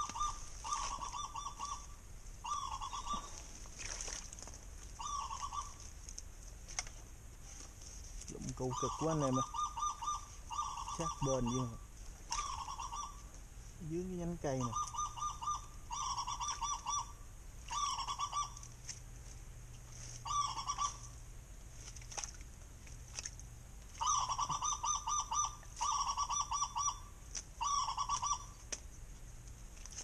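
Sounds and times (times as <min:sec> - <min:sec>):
bird honking calls: 0:00.0 - 0:03.4, 0:05.0 - 0:05.8, 0:08.6 - 0:13.3, 0:13.9 - 0:18.7, 0:20.2 - 0:21.2, 0:24.0 - 0:28.6.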